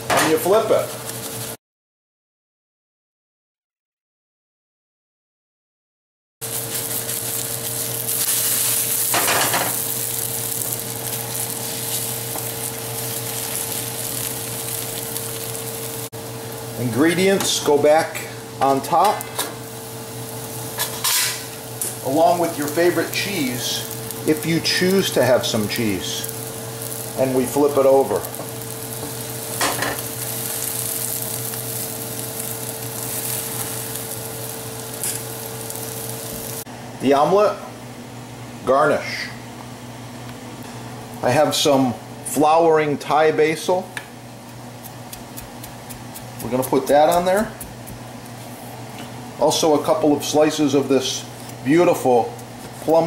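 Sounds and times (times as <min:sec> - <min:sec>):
omelet sizzling in frying pan: 0:00.3 - 0:01.6, 0:06.4 - 0:36.7, 0:44.1 - 0:53.0.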